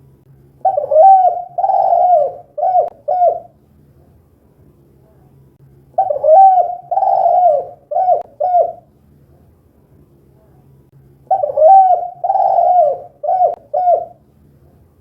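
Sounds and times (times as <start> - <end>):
dove cooing: 0.6 - 3.5, 6.0 - 8.9, 11.3 - 14.2.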